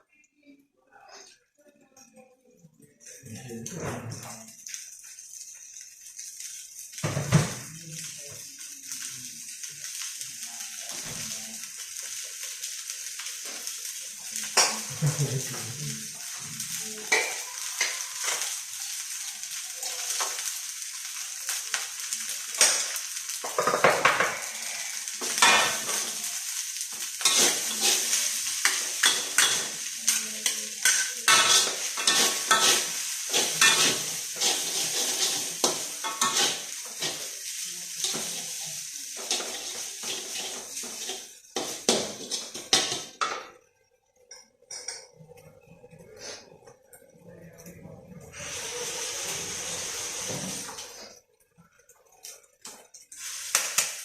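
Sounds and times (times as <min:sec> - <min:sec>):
food sizzling in a frying pan: 0:02.0 - 0:54.0
utensil scraping a pan: 0:27.2 - 0:30.2, 0:30.8 - 0:37.3, 0:39.2 - 0:43.2.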